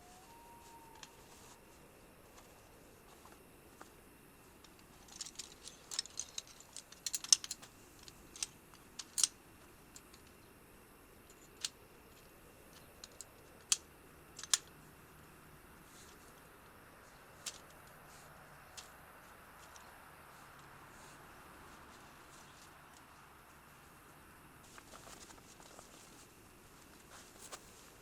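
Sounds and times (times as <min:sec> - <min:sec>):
sharp irregular clicks: 0:13.0 - 0:14.8.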